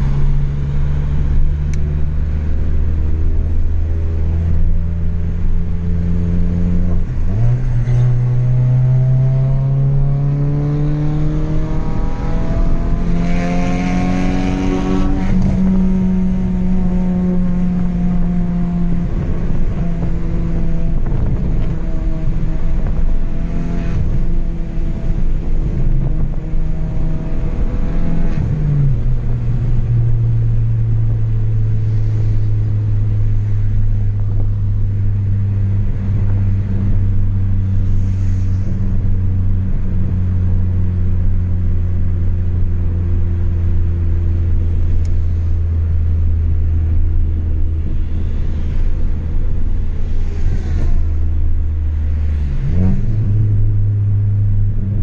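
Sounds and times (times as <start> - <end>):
car engine driving: 0.0 - 55.0.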